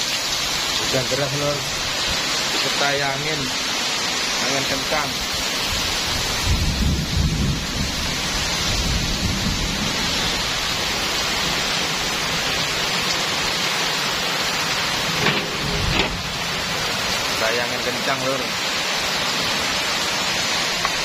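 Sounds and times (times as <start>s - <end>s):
heavy rain hissing: 0.0s - 21.0s
strong wind: 5.2s - 13.0s, 14.5s - 17.4s
low rumble: 15.0s - 16.9s.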